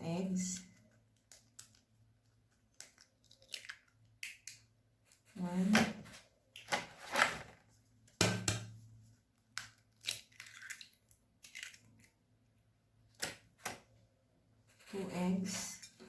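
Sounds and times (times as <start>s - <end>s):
eggshells cracking against bowl: 9.5s - 12.2s.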